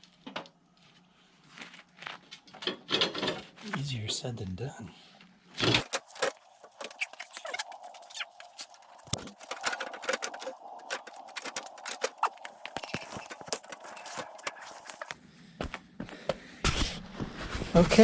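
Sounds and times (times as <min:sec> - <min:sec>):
metal pieces clicking and scraping: 0:05.6 - 0:15.1.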